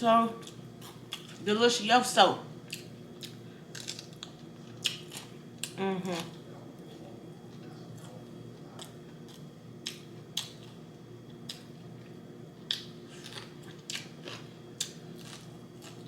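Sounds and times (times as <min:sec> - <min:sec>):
person chewing food: 0:02.6 - 0:06.4, 0:07.9 - 0:16.0.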